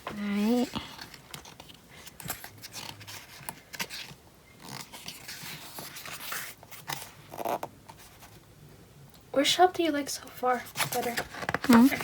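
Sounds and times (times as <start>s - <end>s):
paper rustling: 0.2s - 8.4s, 10.6s - 12.0s.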